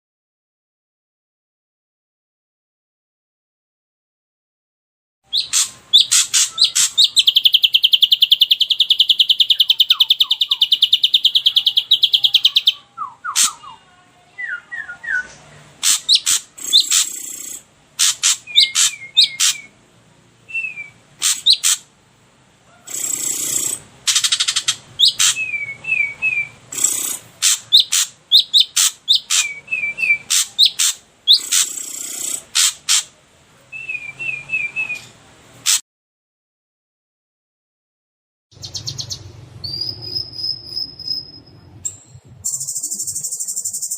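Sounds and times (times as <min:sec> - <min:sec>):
songbird rattling trill: 0:05.3 - 0:12.8, 0:15.8 - 0:19.7, 0:20.7 - 0:21.8, 0:22.9 - 0:26.1, 0:26.7 - 0:33.1, 0:38.6 - 0:43.9
songbird rasping calls: 0:05.3 - 0:13.8, 0:15.8 - 0:19.8, 0:20.5 - 0:21.9, 0:22.8 - 0:33.2.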